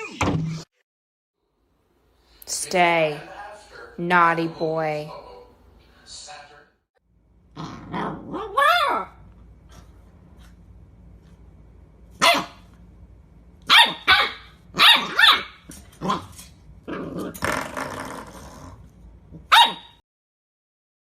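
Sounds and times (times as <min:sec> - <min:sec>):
dog growling: 0:07.5 - 0:09.1, 0:16.0 - 0:19.0
dog barking: 0:12.2 - 0:12.6, 0:13.7 - 0:16.2, 0:19.5 - 0:20.0.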